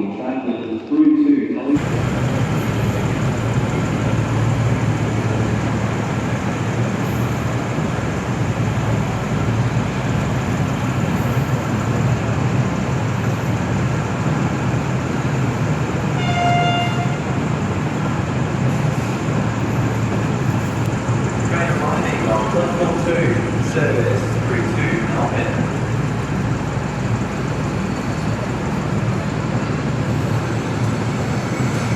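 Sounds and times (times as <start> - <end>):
diesel train engine droning: 1.7 - 31.9
train horn toot: 16.2 - 17.3.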